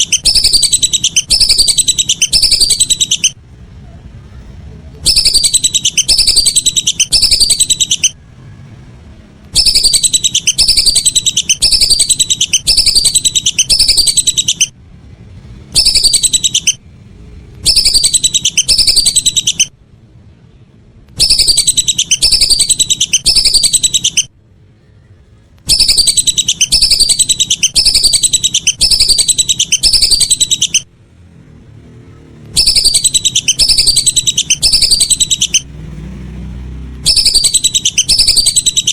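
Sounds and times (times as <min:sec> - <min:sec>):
whistling duck calls: 0:00.0 - 0:03.4, 0:05.0 - 0:08.2, 0:09.6 - 0:14.7, 0:15.8 - 0:16.8, 0:17.6 - 0:19.7, 0:21.2 - 0:24.3, 0:25.7 - 0:30.9, 0:32.6 - 0:35.7, 0:37.0 - 0:38.9.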